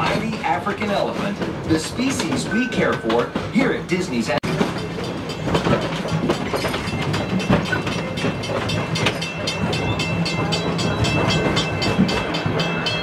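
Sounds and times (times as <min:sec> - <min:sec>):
train rumble and hum: 0:00.0 - 0:13.0
train wheels clicking: 0:00.0 - 0:13.0.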